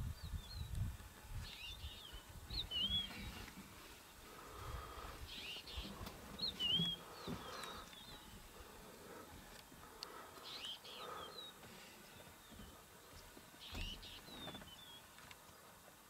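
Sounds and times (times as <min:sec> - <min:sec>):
birds whistling: 0:01.4 - 0:03.5, 0:04.5 - 0:09.2, 0:10.0 - 0:12.7, 0:13.6 - 0:15.1.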